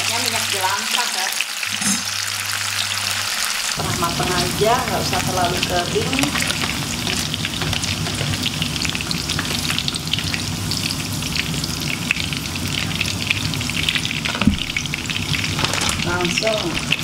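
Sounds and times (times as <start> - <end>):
tofu sizzling in oil: 0.1 - 17.0.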